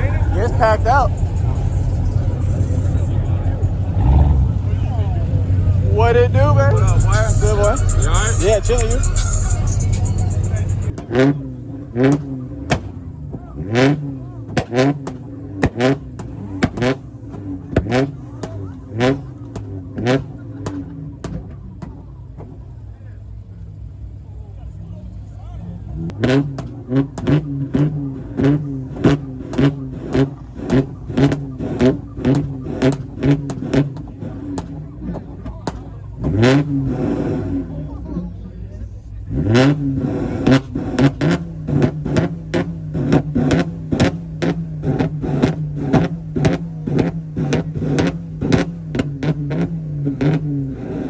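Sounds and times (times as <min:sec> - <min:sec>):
car engine at high revs: 0:00.0 - 0:51.0
exhaust popping: 0:00.0 - 0:51.0.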